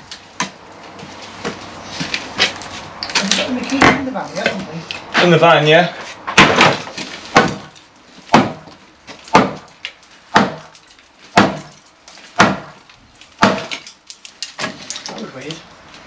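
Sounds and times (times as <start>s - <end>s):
heavy blows on timber wall: 3.7s - 4.2s, 6.2s - 12.8s, 13.4s - 13.9s.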